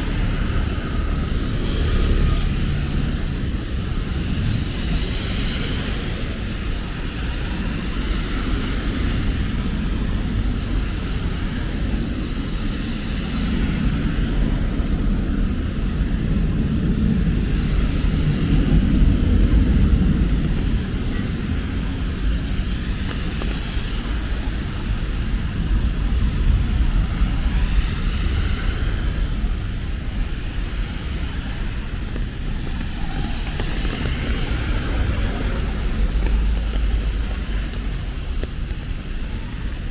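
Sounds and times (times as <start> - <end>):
rain hiss: 0.0 - 39.9
traffic rumble: 0.0 - 39.9.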